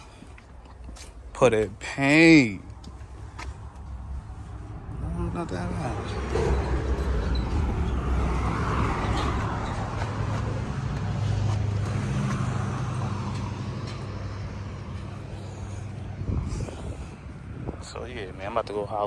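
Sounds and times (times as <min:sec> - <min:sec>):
road traffic noise: 0:00.0 - 0:19.0
car engine running: 0:02.8 - 0:17.2.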